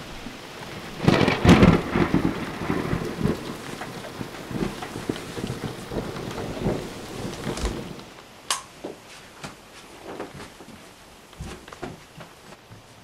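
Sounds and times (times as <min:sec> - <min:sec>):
sharp click: 0:08.5 - 0:08.7
footsteps going down stairs: 0:08.7 - 0:13.0.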